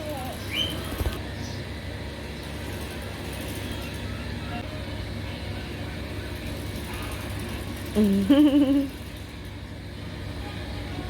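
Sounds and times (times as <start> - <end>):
low background hum: 0.0 - 11.0
person humming briefly: 8.0 - 8.9.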